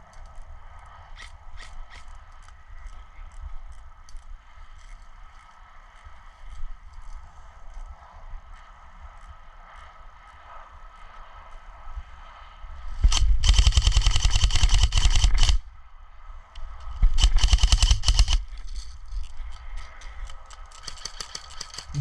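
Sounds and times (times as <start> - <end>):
airsoft gun rapid bursts: 13.1 - 15.6, 17.1 - 18.5, 20.8 - 22.0.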